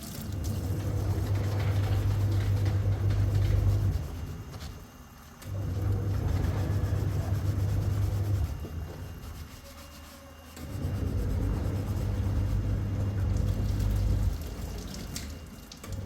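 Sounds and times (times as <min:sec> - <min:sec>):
rubbing or scrubbing: 0:00.3 - 0:04.8, 0:05.8 - 0:14.9.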